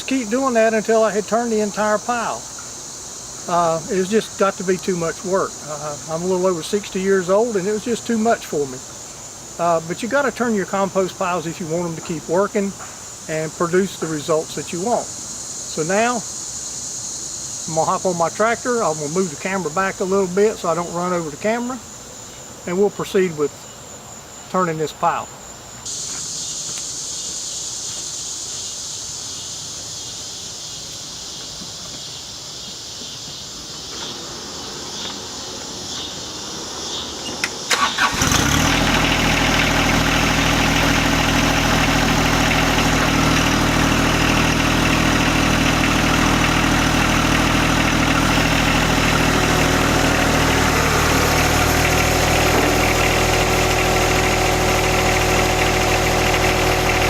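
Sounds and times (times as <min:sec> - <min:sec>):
tractor diesel engine starting: 0:00.0 - 0:08.9, 0:09.5 - 0:12.6, 0:37.3 - 0:57.0
crickets chirping: 0:00.0 - 0:57.0.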